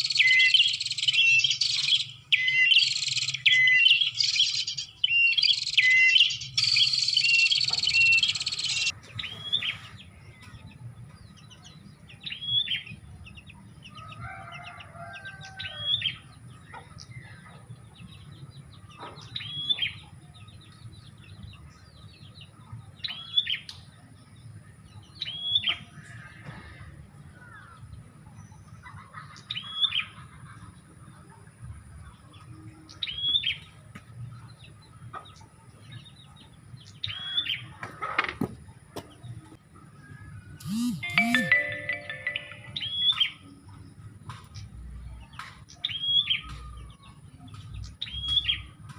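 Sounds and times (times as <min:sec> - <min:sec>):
rising and falling bird call: 0:40.6 - 0:43.3.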